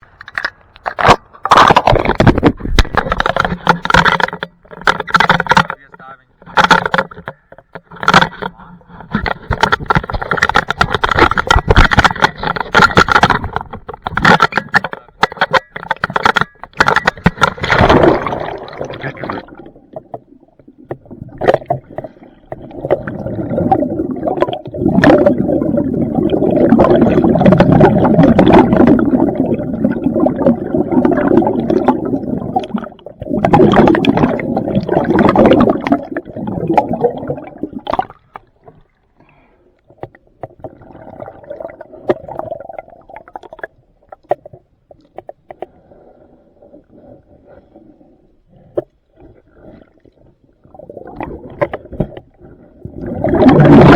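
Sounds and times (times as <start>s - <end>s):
underwater scraping on hull: 0.9s - 38.0s, 45.5s - 53.9s
gurgling bubbles: 15.8s - 38.9s, 39.9s - 45.9s, 48.6s - 53.9s.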